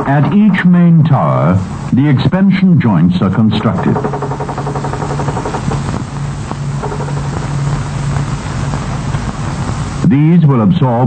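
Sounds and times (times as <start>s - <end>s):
construction machinery engine drone: 1.6s - 10.1s.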